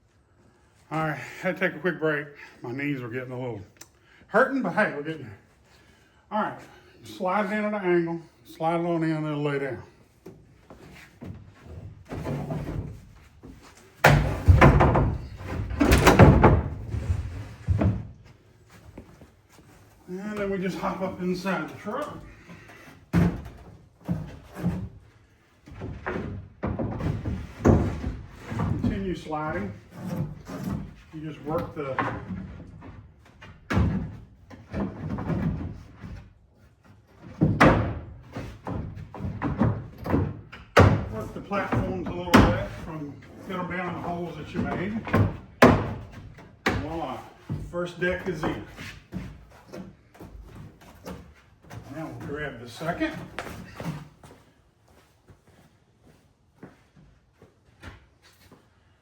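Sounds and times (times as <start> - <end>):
panel knocking and bumping: 14.0 - 17.0
panel knocks and thuds: 14.0 - 18.2, 44.6 - 46.8.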